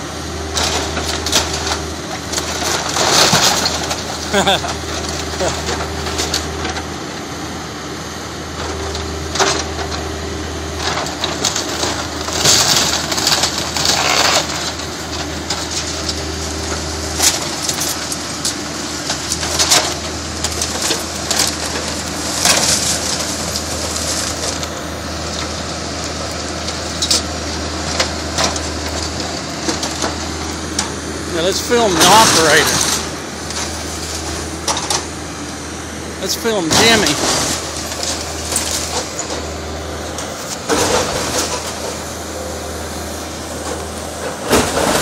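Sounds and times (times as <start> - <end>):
backhoe engine running: 0.0 - 45.0
wood cracking and splintering: 0.5 - 6.5, 10.8 - 35.1, 36.2 - 39.5.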